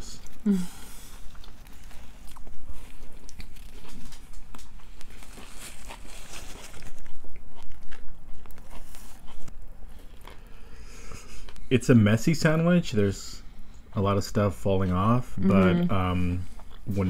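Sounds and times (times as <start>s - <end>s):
biting and chewing bread: 0.1s - 11.7s.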